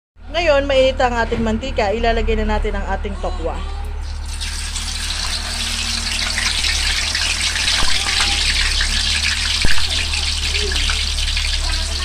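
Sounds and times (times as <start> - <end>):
tofu sizzling in hot oil: 4.0 - 12.0.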